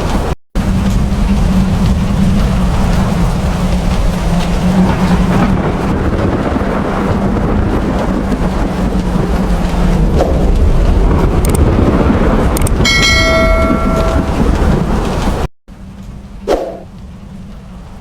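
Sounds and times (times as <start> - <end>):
heavy rain: 0.0 - 18.0
storm rumble: 0.0 - 18.0
bell ringing: 12.8 - 14.5.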